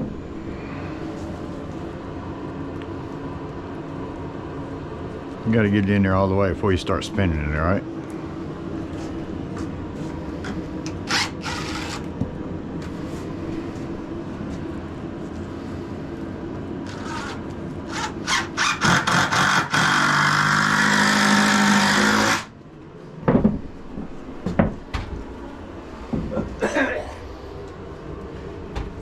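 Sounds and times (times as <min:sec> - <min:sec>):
steady background hum: 0:00.0 - 0:29.0
cordless drill driving screw: 0:11.0 - 0:12.1, 0:16.9 - 0:22.5.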